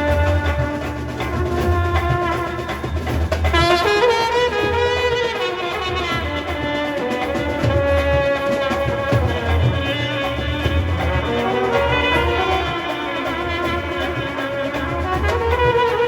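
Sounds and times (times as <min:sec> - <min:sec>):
brass band with saxophones: 0:00.0 - 0:16.0.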